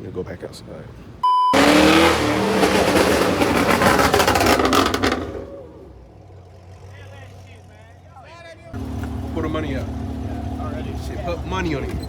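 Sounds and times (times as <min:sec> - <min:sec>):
short beep: 0:01.2 - 0:01.7
car engine revving: 0:01.6 - 0:08.1, 0:08.8 - 0:12.0.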